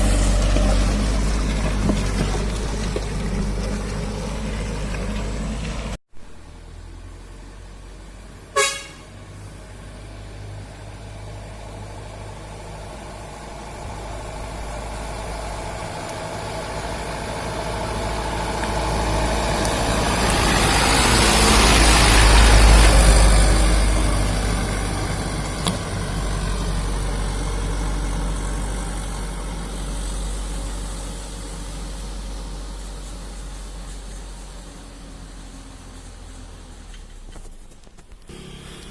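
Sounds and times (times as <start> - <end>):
truck passing by: 0.0 - 38.9
truck horn toot: 8.5 - 9.3, 38.3 - 38.9.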